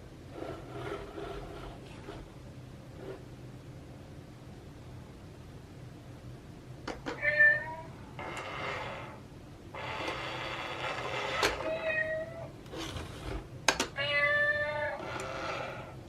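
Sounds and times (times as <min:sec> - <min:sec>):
cat meowing: 0:07.2 - 0:07.9, 0:11.6 - 0:12.5, 0:14.0 - 0:15.1.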